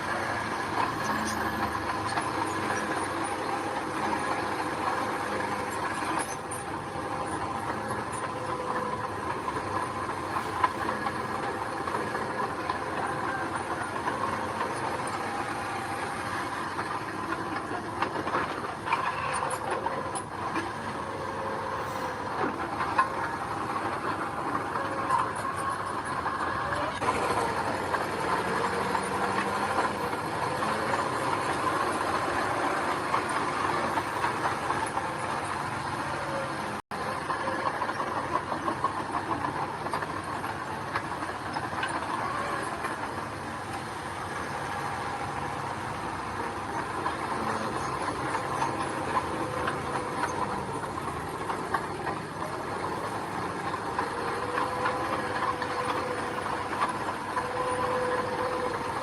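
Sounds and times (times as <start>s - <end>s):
bulldozer diesel engine clattering: 0.0s - 59.0s.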